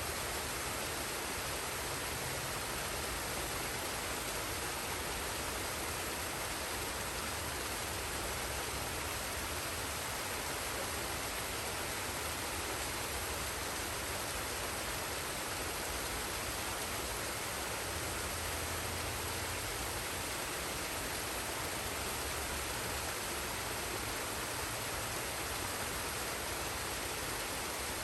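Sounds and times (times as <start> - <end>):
waterfall and stream rushing: 0.0 - 28.0.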